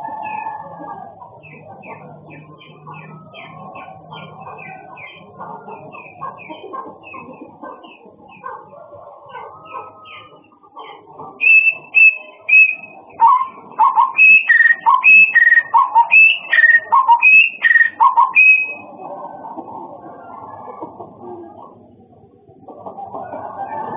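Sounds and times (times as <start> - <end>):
songbird singing: 11.4 - 18.8.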